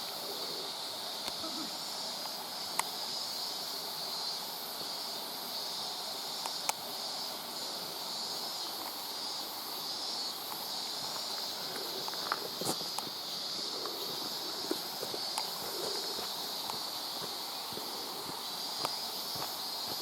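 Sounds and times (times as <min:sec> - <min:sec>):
insect chorus: 0:00.0 - 0:20.0
footsteps on wet path: 0:13.9 - 0:20.0.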